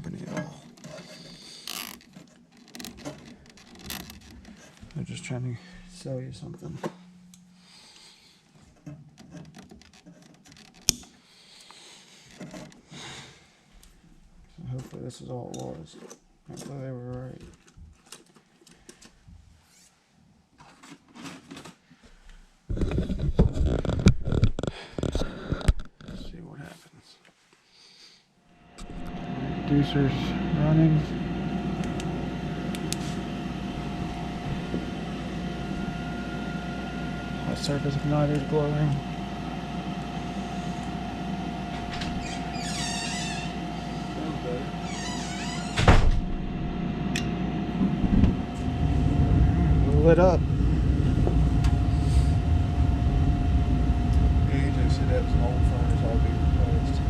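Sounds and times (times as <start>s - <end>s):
handling clicks and scraping: 0.0s - 5.1s, 8.6s - 11.2s
low steady hum: 0.0s - 18.2s, 28.5s - 57.0s.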